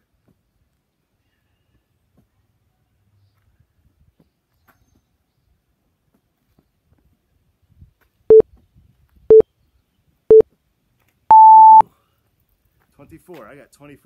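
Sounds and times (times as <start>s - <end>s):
countdown timer beeps: 11.3s - 11.8s.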